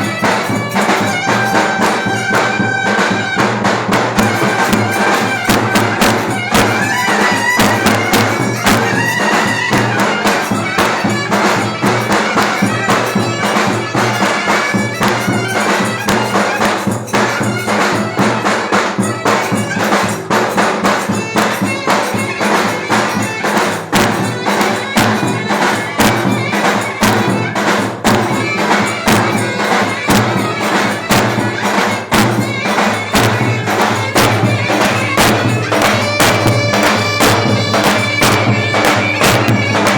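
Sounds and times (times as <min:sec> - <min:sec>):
clarinet melody: 0:04.2 - 0:20.3, 0:28.4 - 0:39.9.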